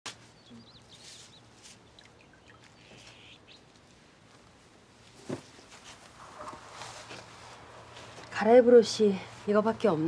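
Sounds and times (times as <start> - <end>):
small birds chirping: 0.1 - 3.8.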